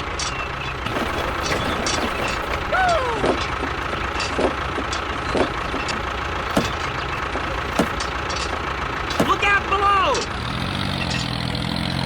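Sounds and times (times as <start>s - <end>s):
tractor engine idling: 0.0s - 12.0s
short falling squeaks: 0.1s - 9.5s.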